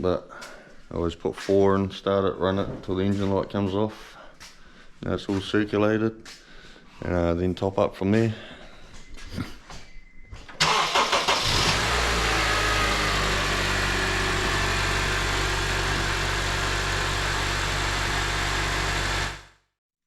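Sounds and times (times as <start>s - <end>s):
car engine starting and idling: 10.6s - 19.5s.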